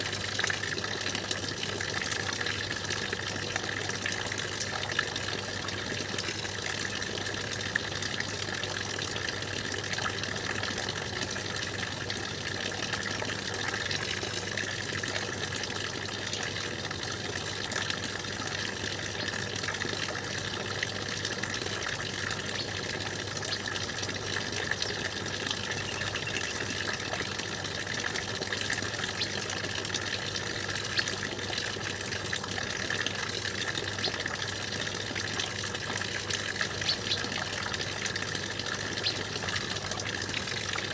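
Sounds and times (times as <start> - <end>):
stream water splashing: 17.5 - 40.9.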